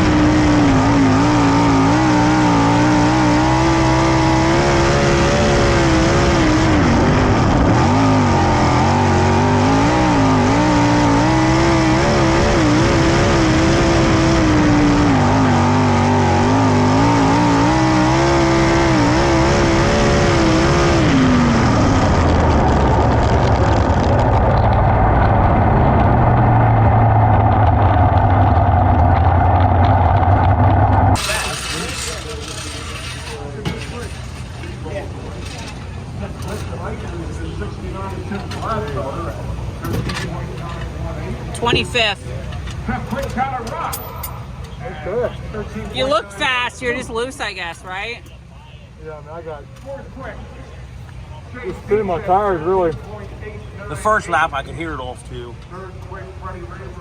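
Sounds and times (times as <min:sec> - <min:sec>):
race car engine revving: 0:00.0 - 0:44.7.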